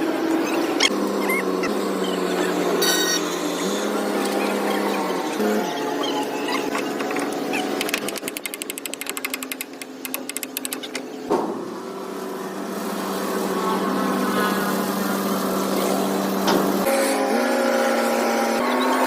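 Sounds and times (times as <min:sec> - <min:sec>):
excavator engine running: 0:04.0 - 0:11.2.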